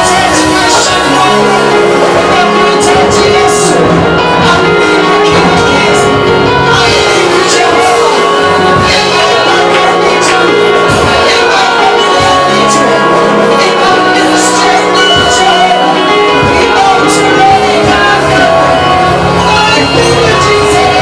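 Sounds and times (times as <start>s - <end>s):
bass notes: 0.0s - 21.0s
keyboard chords: 0.0s - 21.0s.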